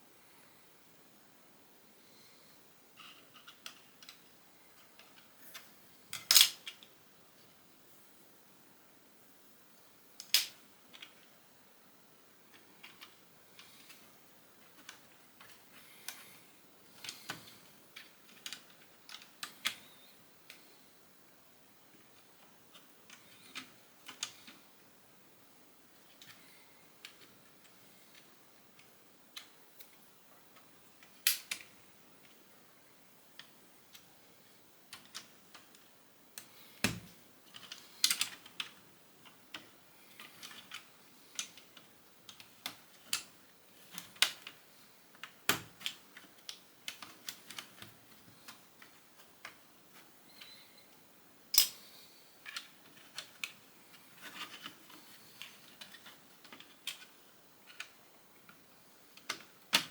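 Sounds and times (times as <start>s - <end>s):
plastic bricks clicking and clattering: 3.0s - 6.9s, 54.2s - 58.0s.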